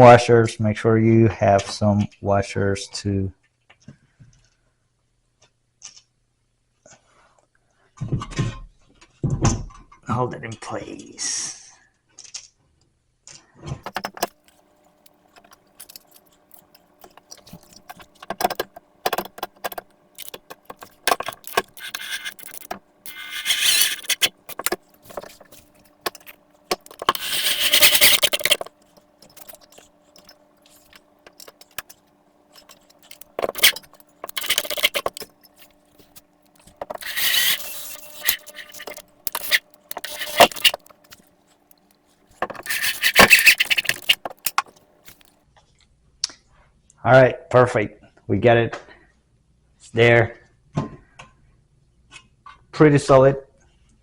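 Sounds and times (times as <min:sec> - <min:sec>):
screws and washers jangling: 0:13.9 - 0:14.5, 0:15.4 - 0:32.0, 0:32.6 - 0:41.2, 0:42.4 - 0:45.2
metal mount scraping: 0:13.9 - 0:14.6, 0:15.3 - 0:41.2, 0:41.8 - 0:45.2.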